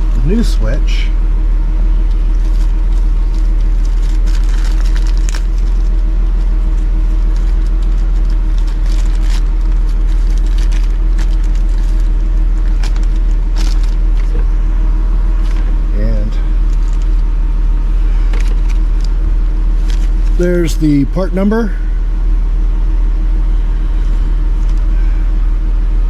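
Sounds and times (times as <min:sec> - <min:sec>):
loud low hum with drone: 0:00.0 - 0:26.0
packaging rustling and clicks: 0:02.1 - 0:14.4, 0:18.3 - 0:19.2.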